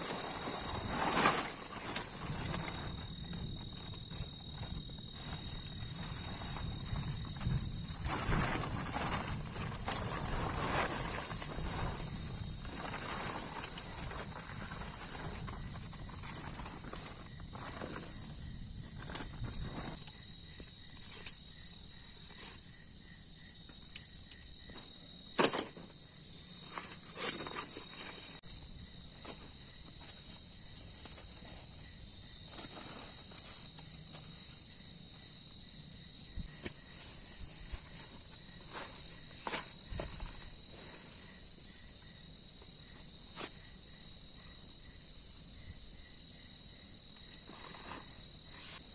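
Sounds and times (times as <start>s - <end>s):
night insects chirping: 0.0s - 48.9s
camp gear clicks and knocks: 18.9s - 20.3s, 23.6s - 26.1s.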